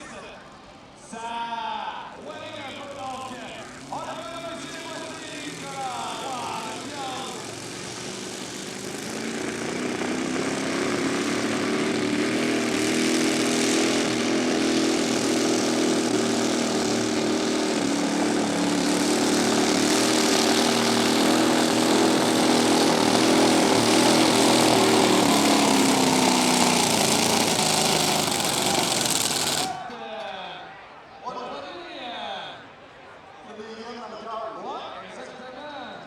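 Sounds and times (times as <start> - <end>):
tractor engine running hard: 2.2 - 29.8.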